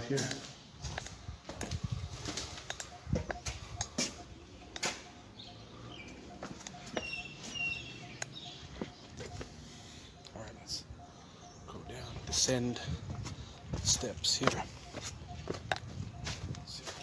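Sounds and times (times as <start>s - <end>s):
footsteps: 0.0s - 5.2s, 6.0s - 7.6s, 8.6s - 9.6s, 12.0s - 17.0s
birds calling: 0.0s - 17.0s.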